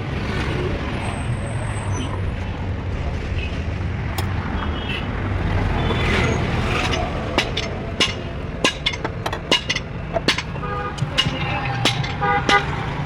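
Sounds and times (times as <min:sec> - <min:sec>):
sharp clicks or knocks: 0:06.8 - 0:13.0.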